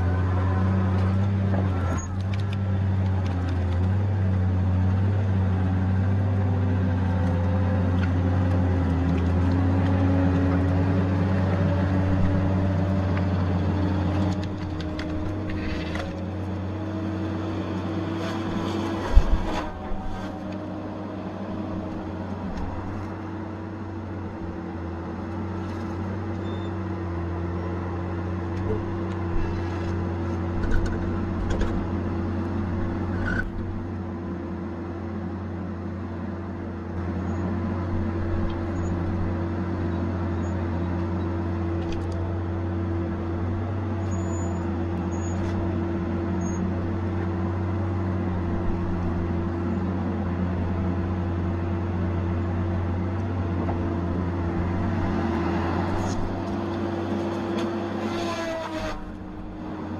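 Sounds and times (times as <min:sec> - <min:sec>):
heavy machine engine hum: 0:00.0 - 0:59.9.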